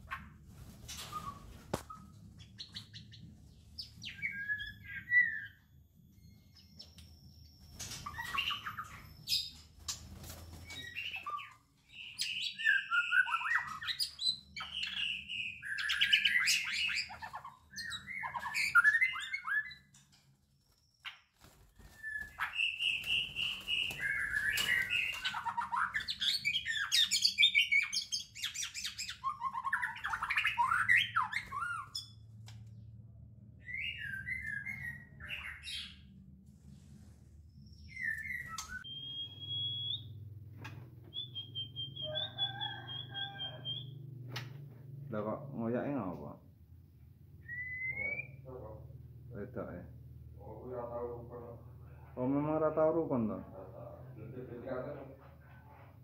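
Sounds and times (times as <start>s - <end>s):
bird singing and calling: 1.0s - 20.0s, 21.9s - 32.2s, 33.6s - 36.1s, 37.7s - 40.2s, 41.1s - 44.0s, 47.4s - 48.8s.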